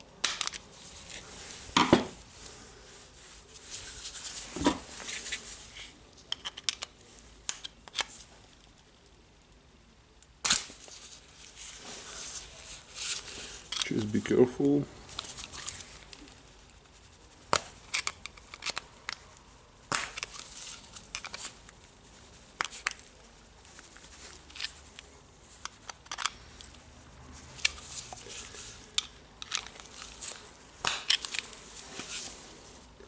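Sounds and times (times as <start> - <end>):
screwdriver clicking and scraping metal: 17.8 - 19.2, 20.2 - 21.6, 25.6 - 26.4, 28.9 - 31.6.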